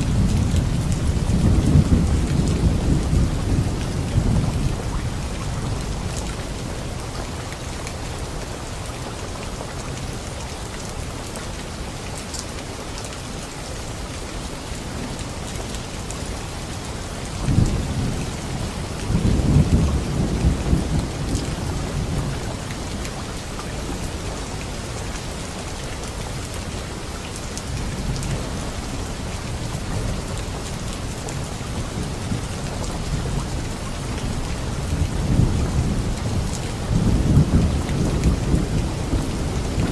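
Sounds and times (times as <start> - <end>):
thunder rumbling: 0.0 - 6.5, 17.5 - 22.7, 31.7 - 39.9
heavy rain: 0.0 - 39.9.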